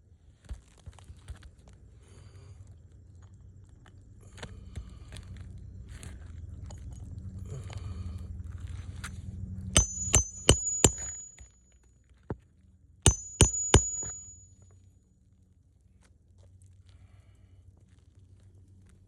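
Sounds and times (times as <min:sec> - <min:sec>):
hammer striking nail: 0:09.8 - 0:11.5, 0:13.1 - 0:14.5.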